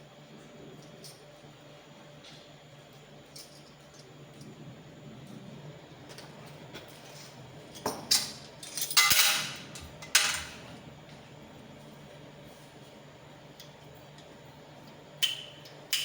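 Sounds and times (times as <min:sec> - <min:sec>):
metal parts clinking on hard surface: 0:08.1 - 0:09.5.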